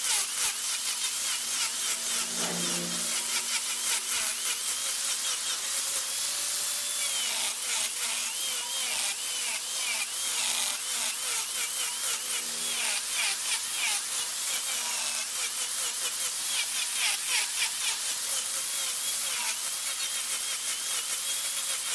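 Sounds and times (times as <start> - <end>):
wood lathe cutting wood: 0.0 - 21.9
faint wavering squeal: 1.3 - 4.2, 11.7 - 13.2.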